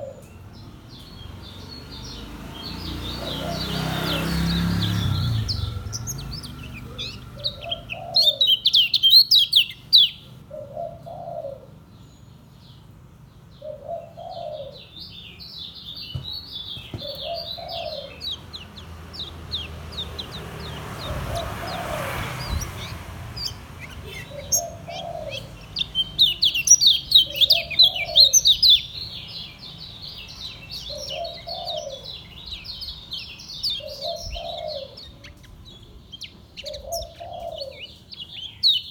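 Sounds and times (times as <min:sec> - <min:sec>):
bird singing high chattering runs: 0:03.0 - 0:10.2, 0:15.8 - 0:38.9.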